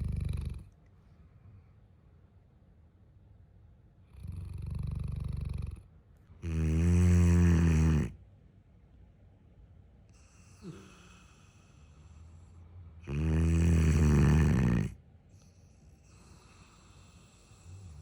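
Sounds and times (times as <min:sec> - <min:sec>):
dog snoring: 0:00.0 - 0:00.8, 0:04.1 - 0:08.2, 0:10.1 - 0:12.2, 0:13.0 - 0:18.0.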